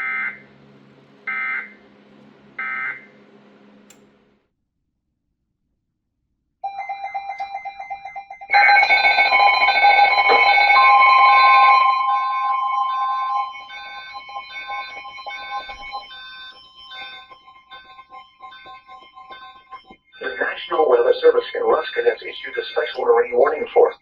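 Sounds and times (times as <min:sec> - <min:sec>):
warbling emergency alert tones: 0:06.7 - 0:24.0
steady single tone: 0:09.3 - 0:20.0.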